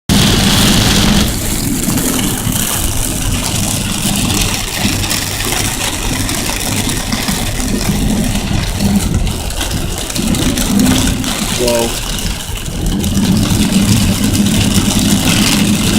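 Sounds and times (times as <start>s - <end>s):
car engine rumble: 0.1s - 15.9s
heavy rain: 0.1s - 15.9s
wet road spray: 0.1s - 15.9s.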